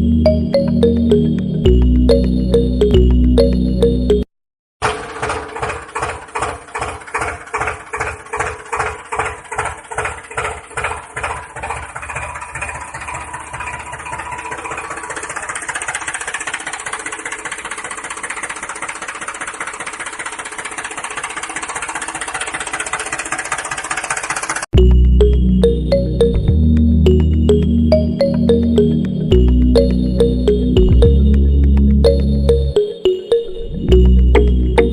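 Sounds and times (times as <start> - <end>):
tractor engine chugging: 4.8 - 26.4.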